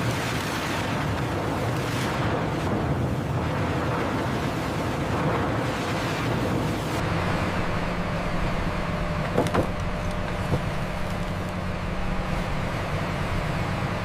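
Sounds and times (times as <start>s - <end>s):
factory machinery roar: 2.5s - 14.0s
low hum: 6.9s - 14.0s.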